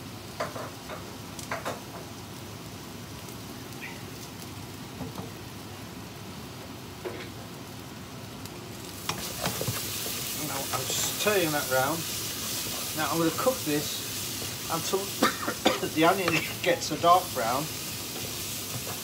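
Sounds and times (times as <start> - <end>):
vegetables sizzling in a pan: 0.0 - 19.0
wooden spatula stirring and scraping: 9.0 - 19.0.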